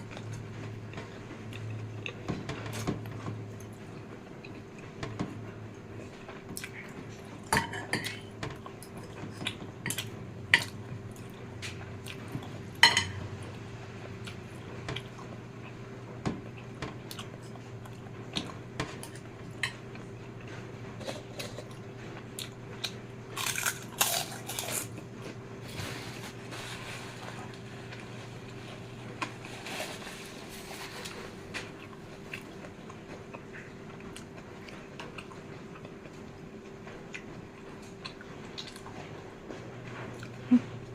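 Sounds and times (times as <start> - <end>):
steady background hum: 0.0 - 40.9
cutlery clinking on a plate: 12.8 - 13.2
chewing: 27.2 - 36.4, 37.1 - 39.1.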